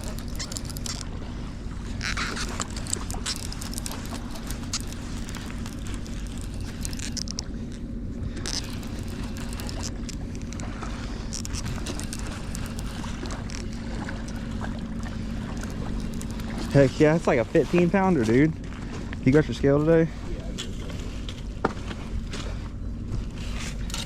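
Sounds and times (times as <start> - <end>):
faint clicks: 0.0 - 1.1, 2.0 - 7.8, 8.4 - 10.6, 11.3 - 14.4, 15.5 - 16.7
low engine drone: 0.0 - 24.0.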